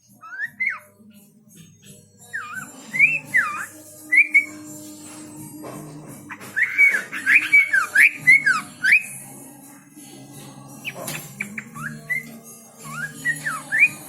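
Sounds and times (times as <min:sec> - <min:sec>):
songbird whistling: 0:00.1 - 0:01.0, 0:02.2 - 0:04.8, 0:06.3 - 0:09.2, 0:10.8 - 0:14.0.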